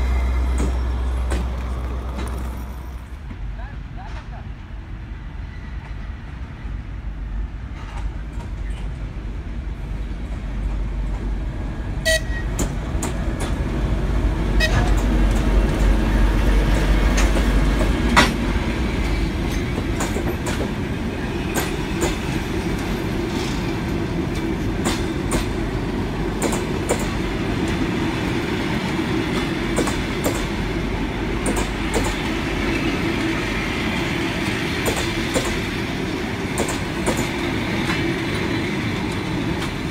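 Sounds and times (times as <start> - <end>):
locomotive engine rumble: 0.0 - 4.8
train wheels clicking over rail joints: 0.2 - 3.4, 12.4 - 14.0, 14.6 - 39.9.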